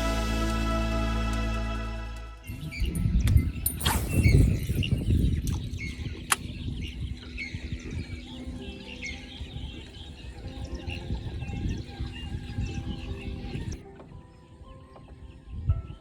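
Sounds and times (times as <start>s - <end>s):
low rumble: 0.0s - 5.5s
birds chirping: 2.4s - 16.0s.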